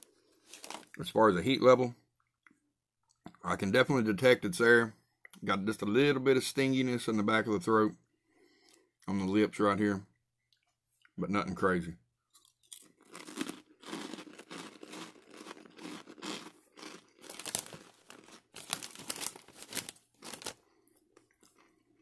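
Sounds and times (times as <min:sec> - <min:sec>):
crunchy pork rinds being chewed: 0:12.3 - 0:22.0.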